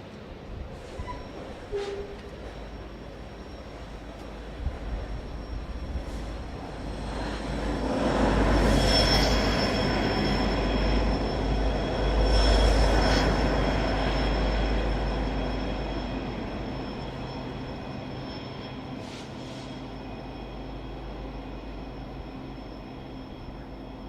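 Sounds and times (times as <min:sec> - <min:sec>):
train passing rumble: 0:00.0 - 0:24.0
high-pitched wheel squeal: 0:00.8 - 0:03.9.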